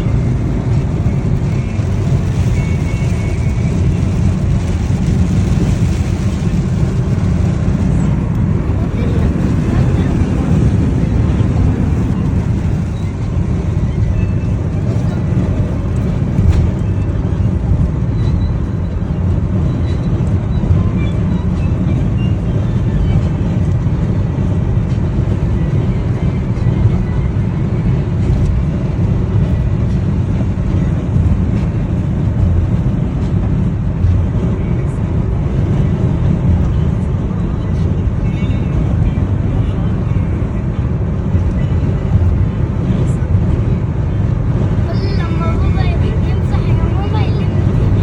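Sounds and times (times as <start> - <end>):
heavy rain falling: 0.1 - 16.8.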